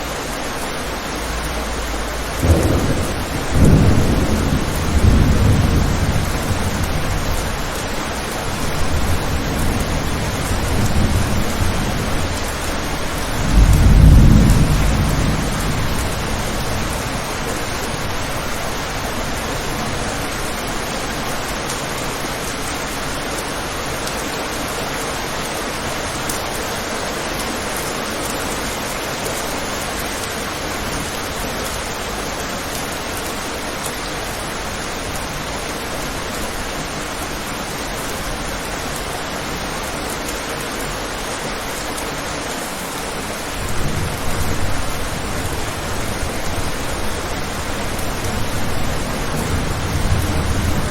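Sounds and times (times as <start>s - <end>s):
steady rain hiss: 0.0s - 50.9s
thunder rolling: 1.6s - 20.3s, 43.6s - 50.9s.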